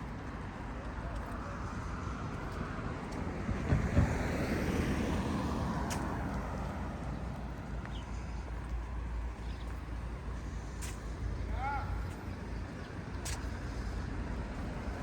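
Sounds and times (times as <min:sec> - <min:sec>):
car passing by: 0:01.4 - 0:09.0.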